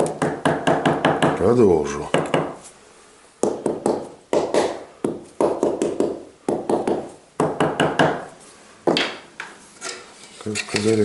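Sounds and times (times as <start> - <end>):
trowel tapping and scraping: 3.4 - 11.0.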